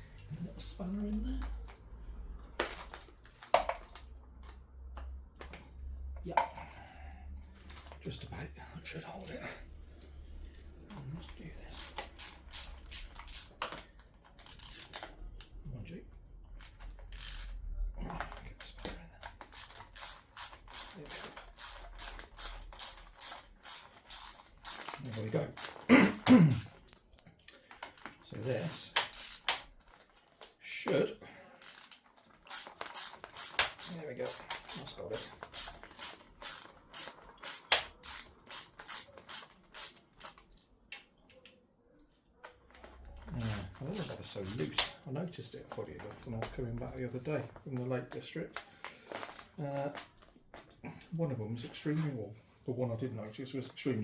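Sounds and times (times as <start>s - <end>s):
metallic clicks of spanner and bolts: 9.2s - 15.6s, 16.5s - 30.1s, 31.6s - 46.6s.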